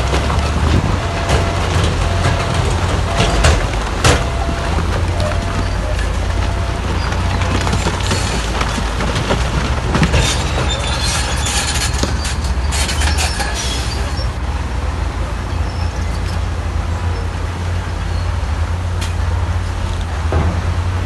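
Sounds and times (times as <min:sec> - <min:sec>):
metallic clanking and rattling: 0:00.0 - 0:14.2
bulldozer diesel engine droning: 0:00.0 - 0:21.0.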